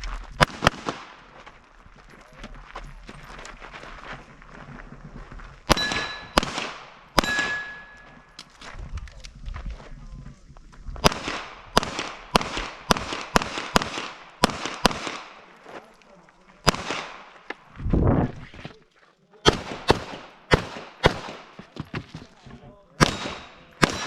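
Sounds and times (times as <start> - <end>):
gunshots: 0.4 - 1.3, 5.7 - 8.0, 11.0 - 15.5, 16.6 - 17.4, 19.4 - 21.6, 23.0 - 24.0.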